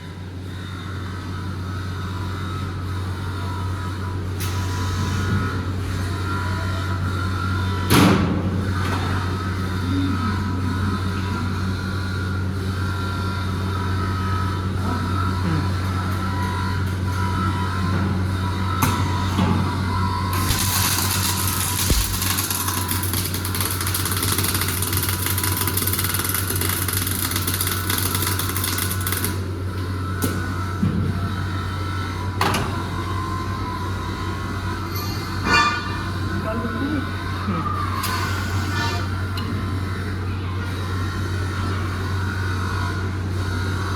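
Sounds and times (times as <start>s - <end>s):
welding machine hum: 0.0s - 43.9s
welding arc hissing and crackling: 20.2s - 29.5s.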